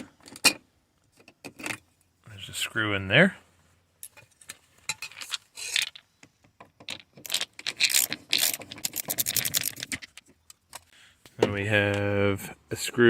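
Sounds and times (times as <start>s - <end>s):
screwdriver clicking and scraping: 6.9s - 10.9s.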